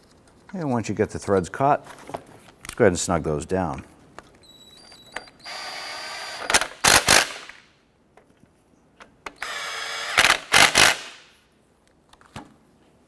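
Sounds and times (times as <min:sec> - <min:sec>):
power driver loud short bursts: 0:09.4 - 0:11.2.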